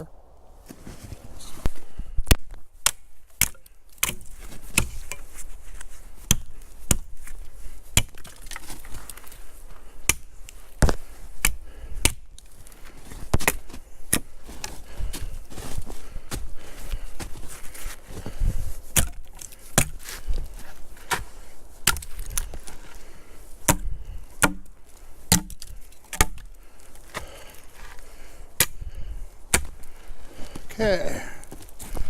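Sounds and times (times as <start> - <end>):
wood being chopped: 2.2 - 5.2, 6.3 - 7.2, 7.9 - 8.9, 10.0 - 12.4, 13.2 - 14.3, 18.9 - 20.2, 21.0 - 22.7, 23.6 - 26.5, 28.6 - 28.8, 29.5 - 29.9.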